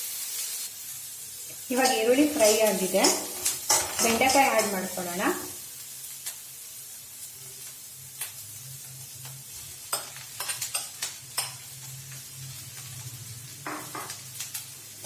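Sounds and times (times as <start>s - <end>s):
okra sizzling in hot oil: 0.0s - 15.0s
spatula scraping pan: 1.7s - 5.1s.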